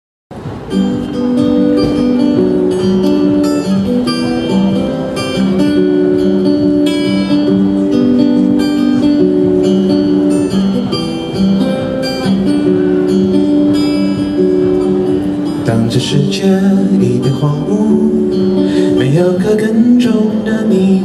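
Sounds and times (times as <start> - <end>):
acoustic guitar chords: 0.3 - 21.0.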